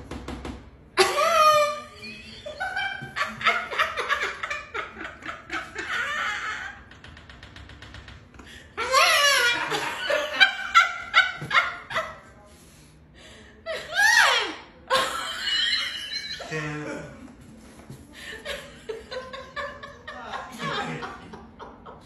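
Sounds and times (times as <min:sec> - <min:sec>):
high-pitched laughter: 0:08.8 - 0:11.4.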